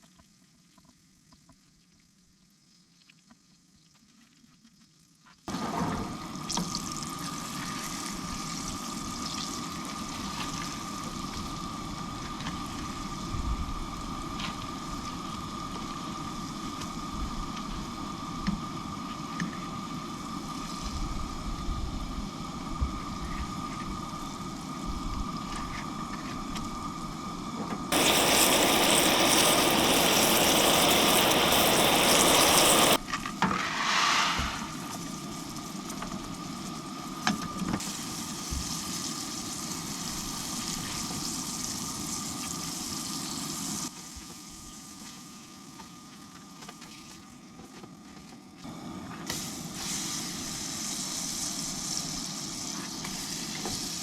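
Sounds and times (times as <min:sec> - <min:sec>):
loud hissing sizzle: 0:05.5 - 0:46.3, 0:48.7 - 0:54.0
food sizzling in a pan: 0:05.6 - 0:19.1, 0:27.9 - 0:37.2, 0:37.8 - 0:46.1, 0:49.3 - 0:54.0.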